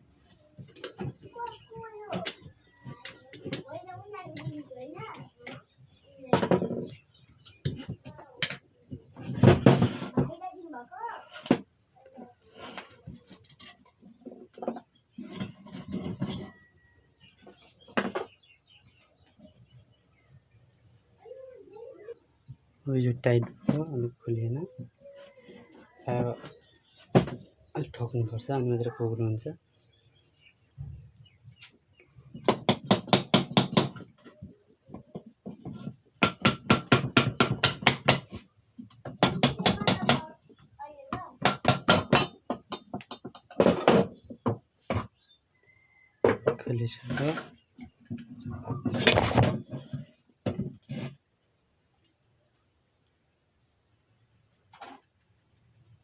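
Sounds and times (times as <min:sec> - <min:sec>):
metal tools clinking and clattering: 0:13.2 - 0:13.9, 0:48.1 - 0:49.5.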